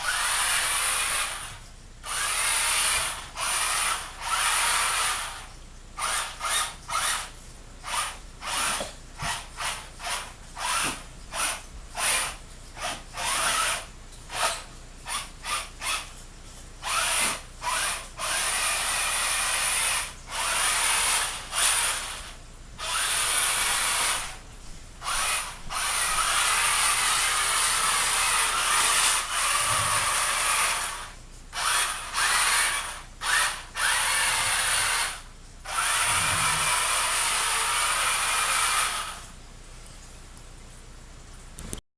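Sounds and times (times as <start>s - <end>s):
electric motor whining: 0.0s - 16.0s, 25.0s - 39.2s.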